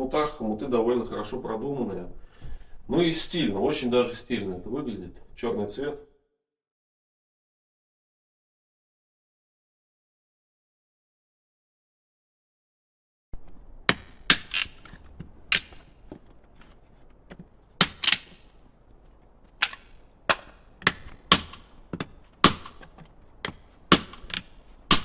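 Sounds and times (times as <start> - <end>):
axe chopping firewood: 13.7 - 18.6, 19.6 - 25.0.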